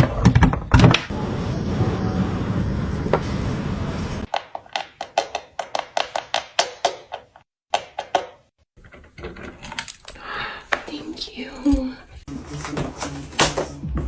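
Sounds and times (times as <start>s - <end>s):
steady noise: 1.1s - 4.3s.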